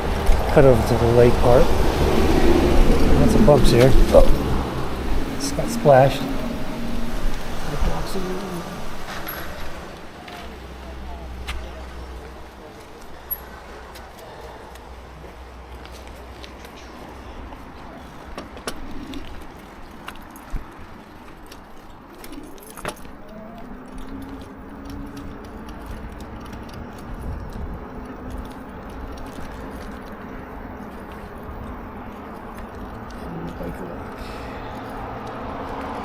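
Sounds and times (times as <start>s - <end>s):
wind rumble on microphone: 0.0s - 9.9s, 23.1s - 33.2s
bike rattling over bumps: 0.0s - 36.0s.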